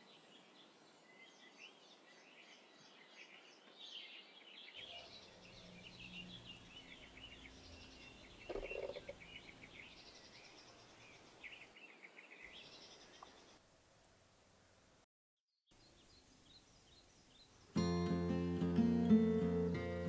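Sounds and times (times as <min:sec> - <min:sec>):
birds chirping and twittering: 0:00.0 - 0:13.6, 0:15.7 - 0:17.6.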